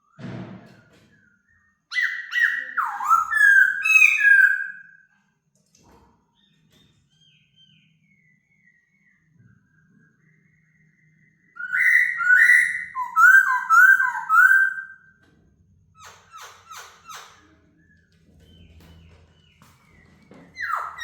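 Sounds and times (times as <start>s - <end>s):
bird whistling: 1.9s - 5.0s, 7.6s - 15.1s, 20.0s - 21.0s.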